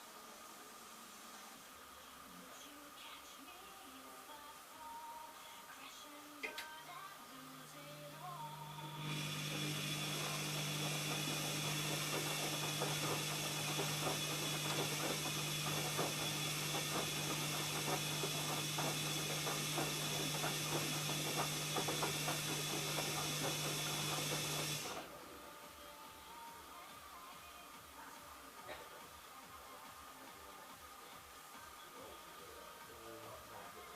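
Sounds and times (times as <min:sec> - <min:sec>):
washing machine hum: 0:07.5 - 0:25.5.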